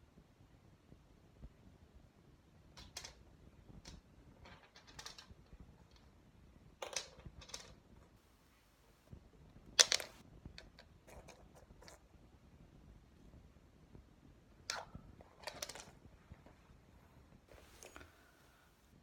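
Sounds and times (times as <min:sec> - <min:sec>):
clicks and rustles of handling: 0:02.7 - 0:06.2, 0:06.8 - 0:08.2, 0:09.1 - 0:12.1, 0:14.7 - 0:16.8, 0:17.5 - 0:18.4.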